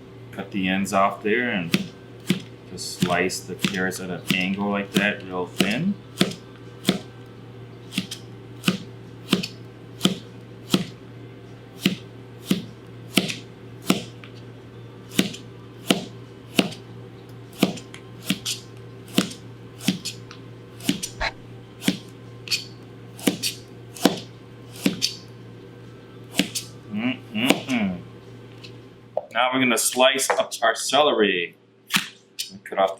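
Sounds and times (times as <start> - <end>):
knife slicing carrots: 1.7 - 7.1, 7.9 - 10.9, 11.8 - 14.1, 15.1 - 16.8, 17.5 - 20.2, 20.8 - 25.2, 26.3 - 26.7, 27.4 - 27.8
knife tapping cutting board: 3.0 - 7.0.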